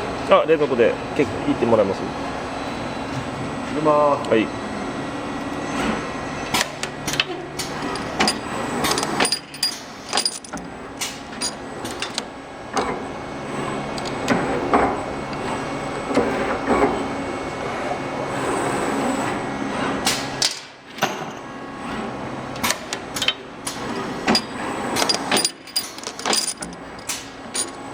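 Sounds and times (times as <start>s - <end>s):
sharp metallic clicks and knocks: 22.6s - 27.8s.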